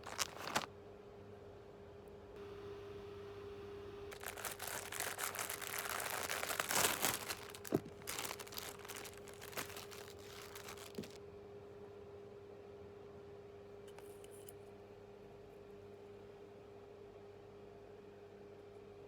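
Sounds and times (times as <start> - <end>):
packaging crinkling and rustling: 0.0 - 0.7, 4.1 - 11.2
faint steady hum: 0.0 - 19.0
small knocks: 5.0 - 11.2.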